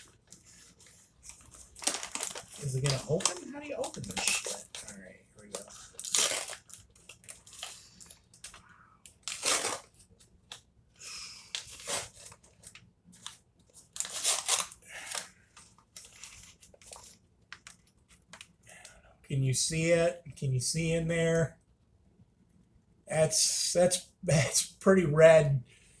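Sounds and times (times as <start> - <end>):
paper bag crinkling and tearing: 0.0 - 10.2, 11.5 - 18.4.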